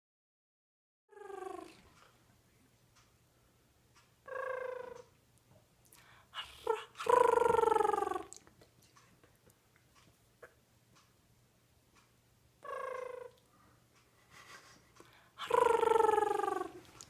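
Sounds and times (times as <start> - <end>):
parrot buzzy raspy calls: 1.1 - 1.8, 6.0 - 8.4, 12.6 - 13.4, 15.4 - 17.0.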